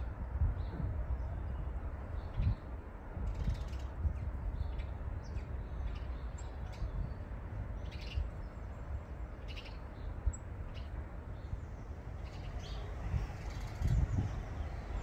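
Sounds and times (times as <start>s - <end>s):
bird chirps and calls: 7.8s - 8.6s, 9.4s - 11.6s, 12.2s - 15.0s
steady low rumble: 9.9s - 15.0s.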